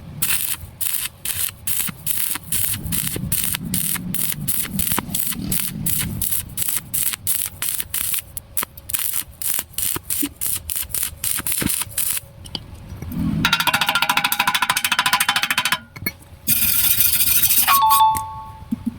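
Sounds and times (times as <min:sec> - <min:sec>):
welding arc crackling: 0:00.1 - 0:12.3, 0:16.5 - 0:17.8.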